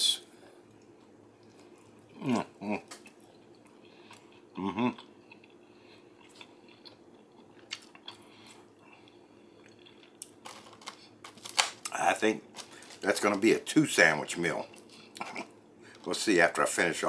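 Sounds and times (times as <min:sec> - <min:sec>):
person chewing food: 0:00.5 - 0:12.0.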